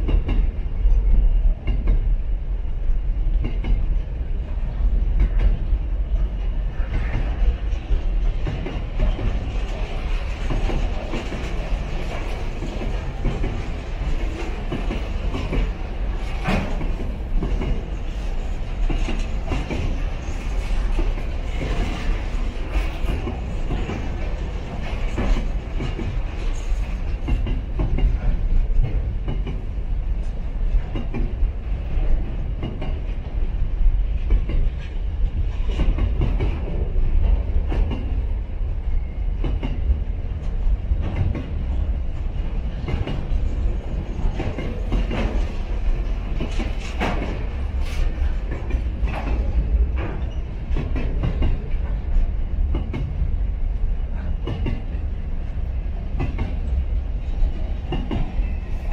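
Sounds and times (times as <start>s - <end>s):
wheels rumbling on rail: 0.0s - 58.9s
wheels clanking over rail joints: 5.0s - 33.2s, 39.0s - 53.2s.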